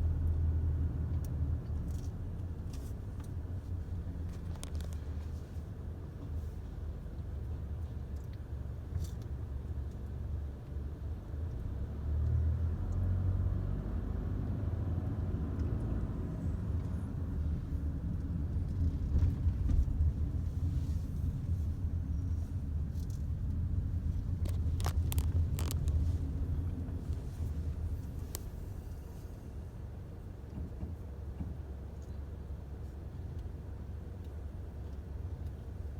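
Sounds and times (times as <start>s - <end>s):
truck engine rumbling: 14.2s - 30.5s.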